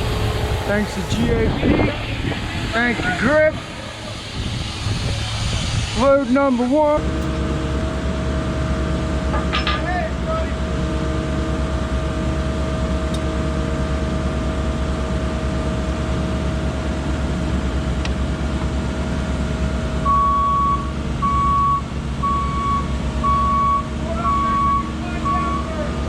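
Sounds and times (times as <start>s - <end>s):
diesel engine running: 0.0s - 26.0s
reversing alarm beeping: 20.0s - 25.9s.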